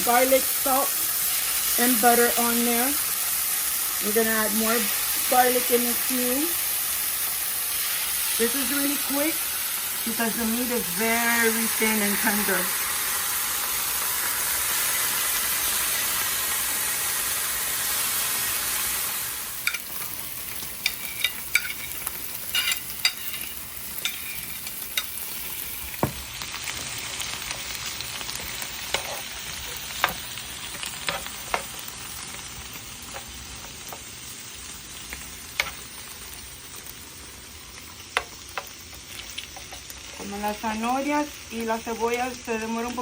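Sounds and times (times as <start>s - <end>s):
steak sizzling: 0.0s - 43.0s
utensil scraping cooking surface: 18.1s - 32.0s.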